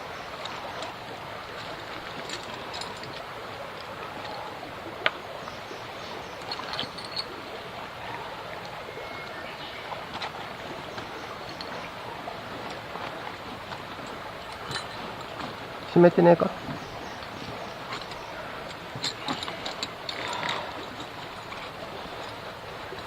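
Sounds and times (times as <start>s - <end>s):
flowing stream: 0.0s - 23.0s.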